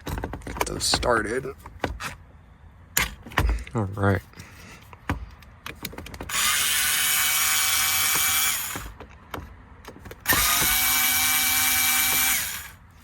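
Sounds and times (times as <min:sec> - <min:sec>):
cordless power driver running: 0:06.3 - 0:09.0, 0:10.2 - 0:12.8.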